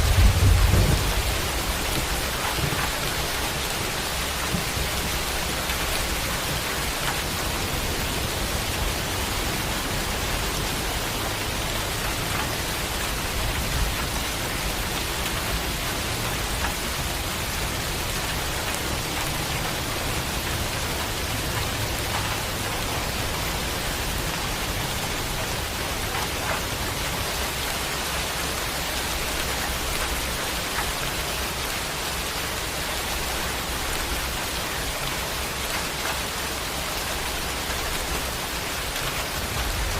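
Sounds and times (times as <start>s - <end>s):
low rumble: 0.0s - 3.0s
heavy rain hissing: 0.0s - 39.9s.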